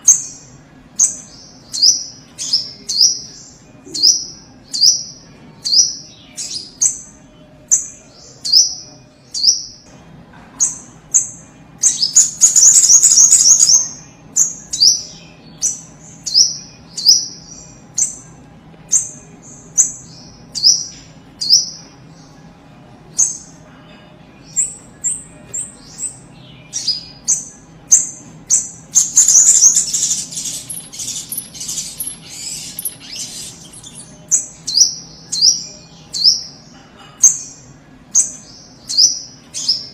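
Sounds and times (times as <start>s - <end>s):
bird rapid loud chattering: 28.9s - 34.1s.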